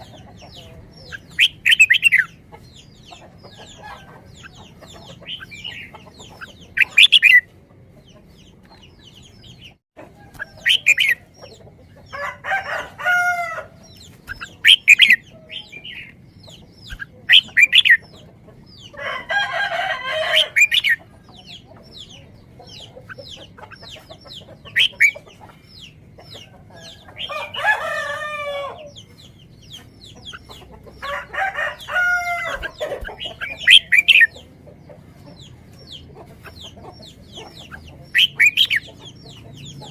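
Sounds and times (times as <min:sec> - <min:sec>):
chickens calling: 0:00.0 - 0:39.9
small birds chirping: 0:00.0 - 0:39.9.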